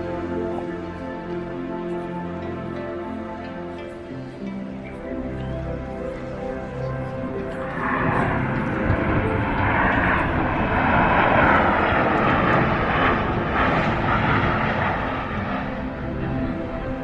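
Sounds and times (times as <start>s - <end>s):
jet airliner engine roar: 5.7s - 17.0s.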